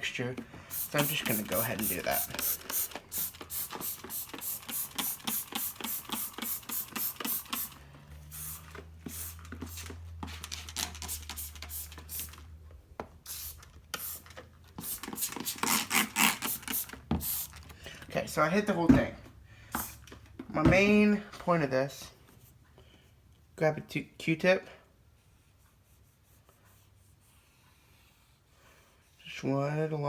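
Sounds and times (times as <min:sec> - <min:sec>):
spray bottle squirting: 0:00.7 - 0:12.5, 0:13.2 - 0:17.7.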